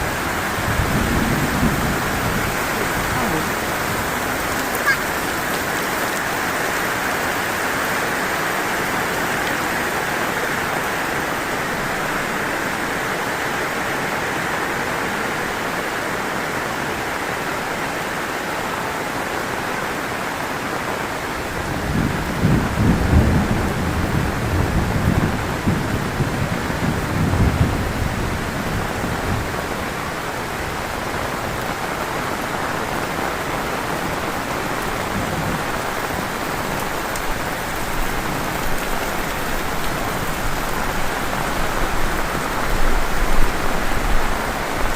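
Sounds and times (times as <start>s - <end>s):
thunder rumbling: 0.0s - 6.3s, 21.4s - 32.0s
heavy rain falling: 0.0s - 44.9s.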